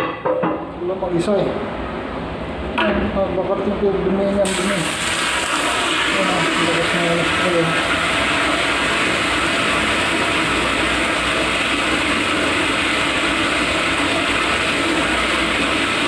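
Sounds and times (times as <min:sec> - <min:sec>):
water filling toilet tank: 0:04.4 - 0:16.0.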